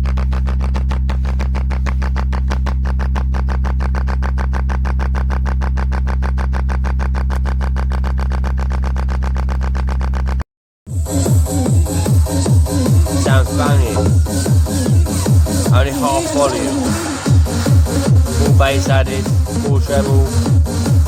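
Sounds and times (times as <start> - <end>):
electronic music on a speaker: 10.9 - 21.0.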